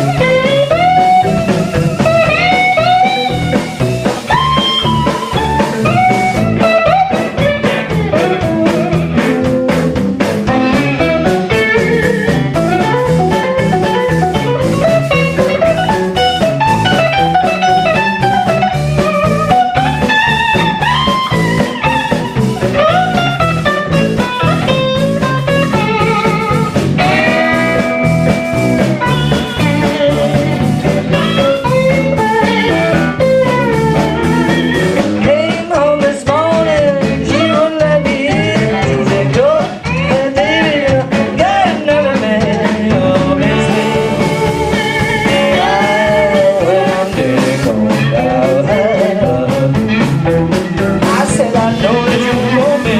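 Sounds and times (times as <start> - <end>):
bending lead guitar: 0.0 - 52.9
live blues band: 0.0 - 52.9.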